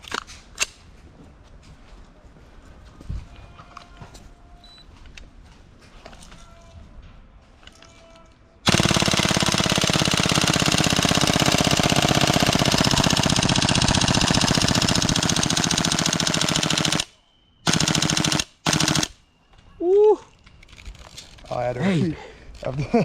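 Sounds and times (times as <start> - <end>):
airsoft gun full-auto burst: 8.6 - 19.2.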